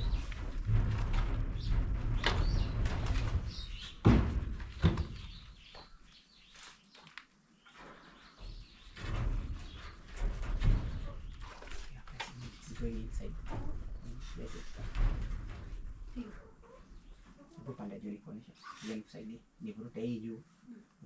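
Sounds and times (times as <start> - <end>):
birds chirping: 0.0 - 0.5, 1.2 - 14.9, 16.2 - 20.2
low rumble: 0.0 - 4.8
sharp knocks: 0.0 - 5.8.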